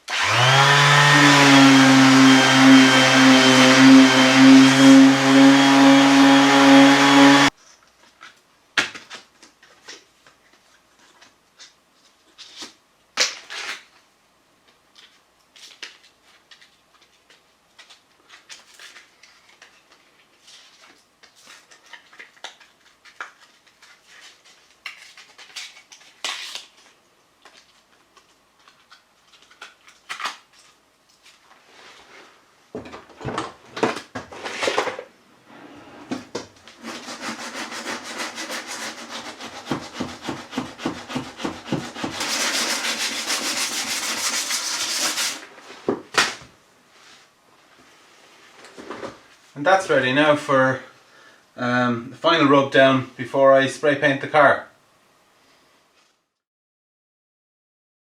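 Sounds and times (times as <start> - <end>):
motor whine: 0.1 - 7.5
sanding strokes: 0.2 - 7.5, 36.8 - 45.4.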